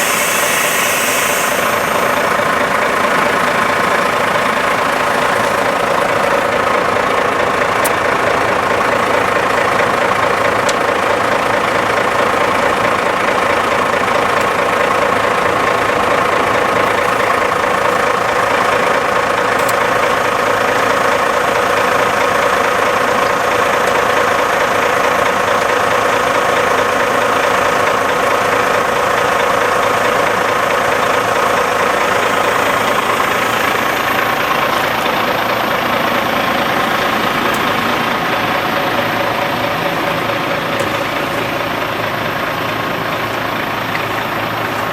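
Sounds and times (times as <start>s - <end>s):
tyres deflating: 0.0s - 43.0s
truck diesel engine idling: 0.0s - 44.9s.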